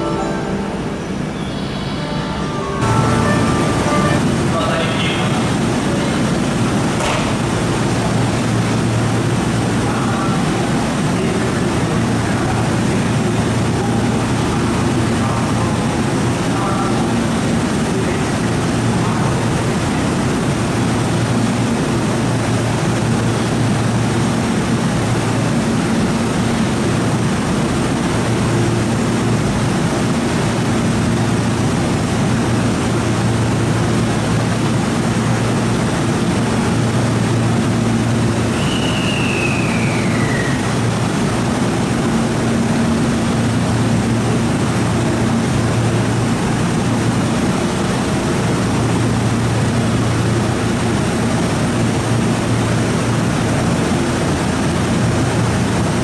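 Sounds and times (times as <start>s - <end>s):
train equipment droning: 0.0s - 28.6s
falling whistle-like tone: 1.3s - 4.2s, 38.5s - 40.8s.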